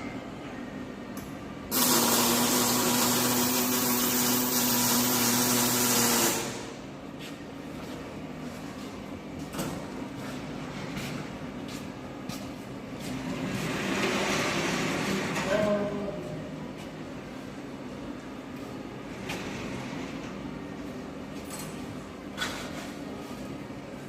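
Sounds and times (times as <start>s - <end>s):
electric welding hiss: 1.7s - 6.8s.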